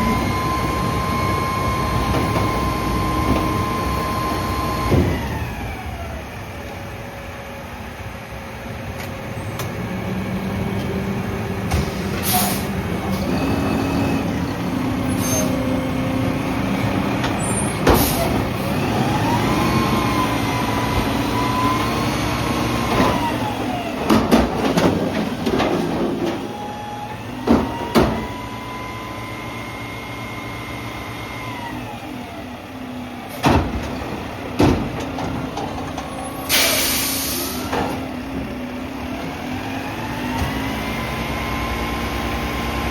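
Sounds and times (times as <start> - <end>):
garbage truck engine revving: 0.0 - 6.7, 9.3 - 42.9
air brake hiss: 11.7 - 12.8, 15.1 - 15.6, 36.4 - 37.7
metal bangs and clanks: 24.0 - 26.5, 33.4 - 36.9.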